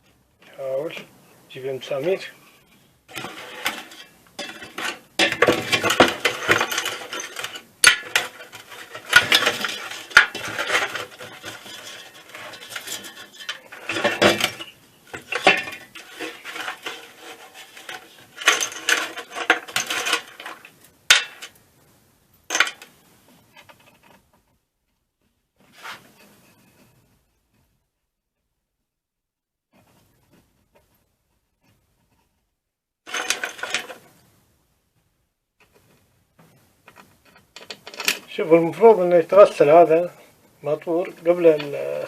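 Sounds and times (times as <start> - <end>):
screws clinking and rattling: 3.1 - 21.6, 33.1 - 34.0, 36.9 - 38.3.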